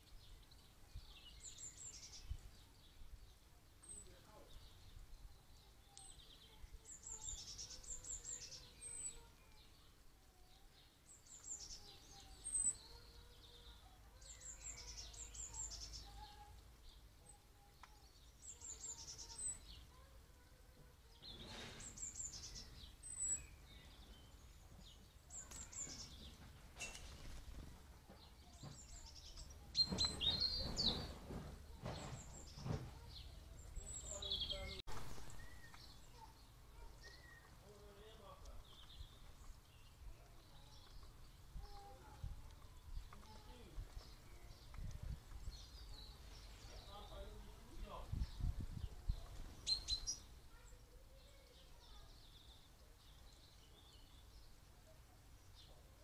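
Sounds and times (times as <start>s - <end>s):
birds chirping: 0.0s - 56.0s
wind rumbling on microphone: 43.8s - 45.7s, 47.9s - 49.6s.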